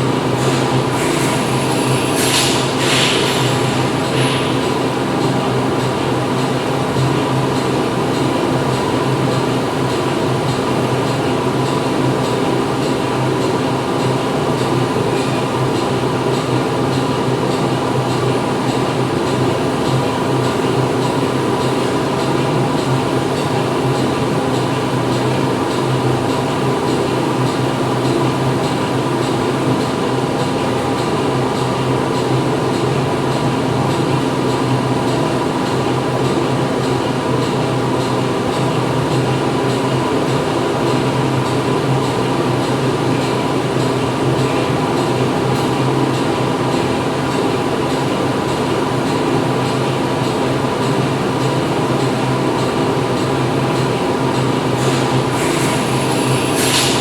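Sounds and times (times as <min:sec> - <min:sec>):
factory machinery hum: 0:00.0 - 0:57.0.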